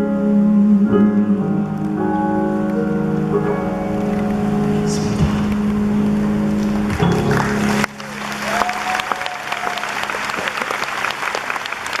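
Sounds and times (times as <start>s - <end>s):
audience applauding: 6.6s - 12.0s
long held cheer: 7.4s - 12.0s.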